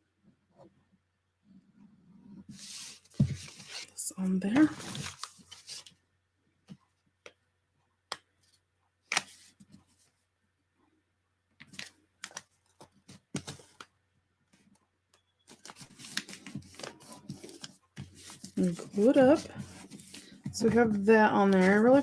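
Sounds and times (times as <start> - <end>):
paper rustling: 4.5 - 5.9, 11.7 - 13.9, 15.5 - 22.0.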